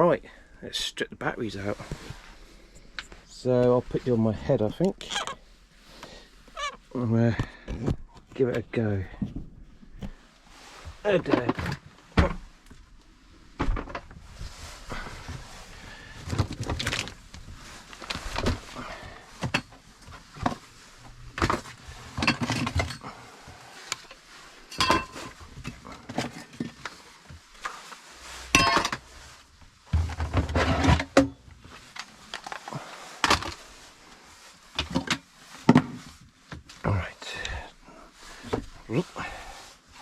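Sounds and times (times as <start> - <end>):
tools clunking and clinking: 21.4 - 23.0, 24.7 - 26.8, 28.5 - 29.1.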